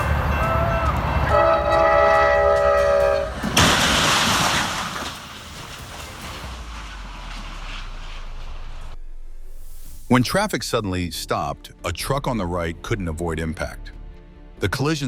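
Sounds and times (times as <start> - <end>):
train horn blowing: 0.0 - 3.4
loud crash of train hitting vehicle: 2.5 - 8.9.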